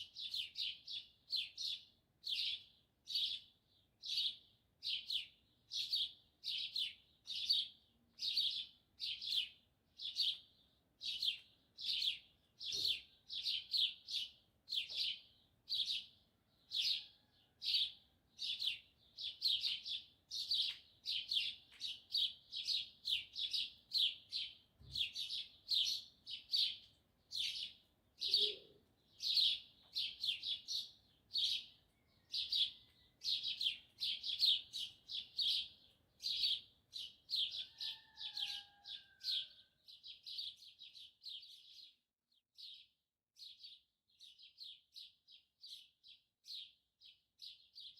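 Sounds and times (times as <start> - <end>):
small songbirds chirping: 0.0 - 47.9.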